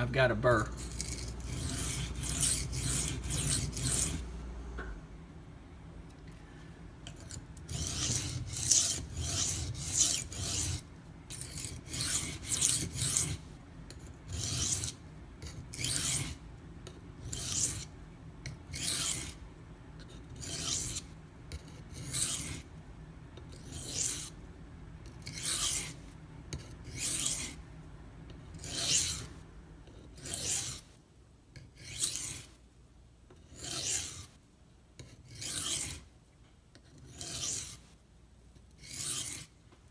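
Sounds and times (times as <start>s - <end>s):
knife rasping on sharpening stone: 0.6s - 4.2s, 7.1s - 16.4s, 17.2s - 19.4s, 20.1s - 22.7s, 23.5s - 24.4s, 25.2s - 27.6s, 28.5s - 29.3s, 29.9s - 30.9s, 31.6s - 32.5s, 33.4s - 34.4s, 35.0s - 36.0s, 36.8s - 37.8s, 38.8s - 39.5s.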